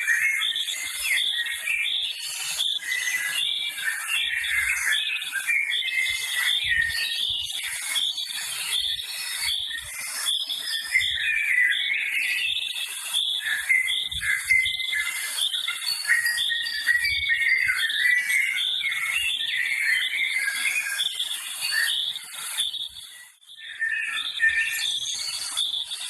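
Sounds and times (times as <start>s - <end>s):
small birds chirping and warbling: 0.0s - 26.0s.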